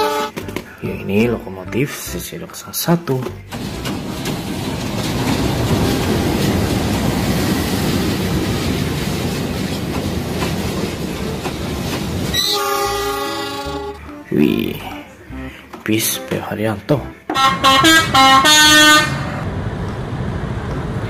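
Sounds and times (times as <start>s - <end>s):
train horn blast: 0.0s - 0.5s, 12.3s - 14.2s, 17.3s - 19.4s
train rumbling and wheel clatter: 3.0s - 15.0s, 17.3s - 21.0s.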